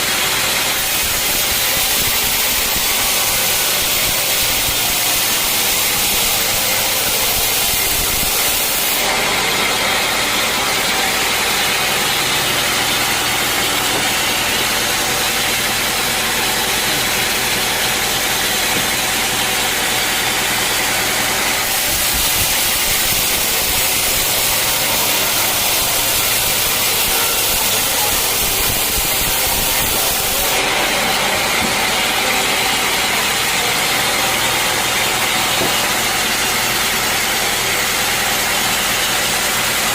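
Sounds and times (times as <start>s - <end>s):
sawmill engine running: 0.0s - 39.9s
heavy hiss: 21.7s - 30.6s.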